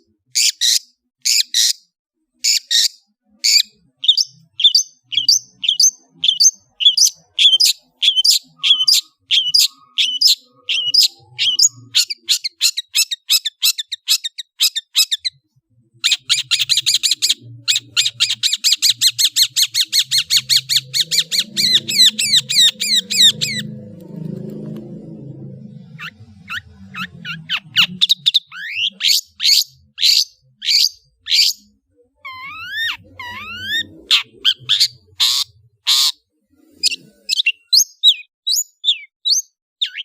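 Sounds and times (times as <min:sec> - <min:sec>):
bird fast trill: 0:02.5 - 0:15.3, 0:16.0 - 0:25.0, 0:25.8 - 0:31.7.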